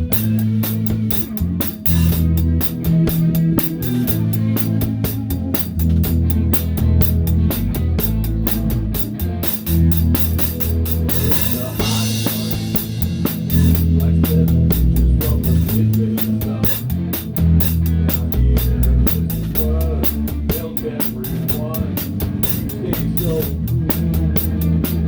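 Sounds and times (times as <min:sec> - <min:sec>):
drum kit fast steady beat: 0:00.0 - 0:25.0
electric bass: 0:00.0 - 0:25.0
electric guitar: 0:00.0 - 0:25.0
cymbal crash: 0:08.1 - 0:14.2.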